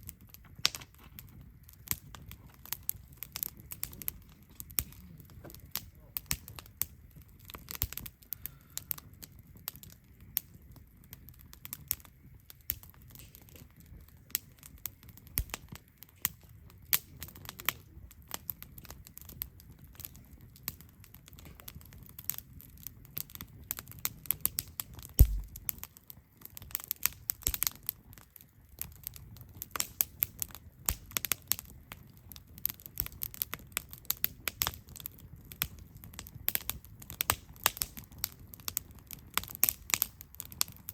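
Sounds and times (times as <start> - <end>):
campfire crackling and popping: 0.0 - 40.9
low rush of fire: 0.0 - 40.9
thump: 25.2 - 25.6.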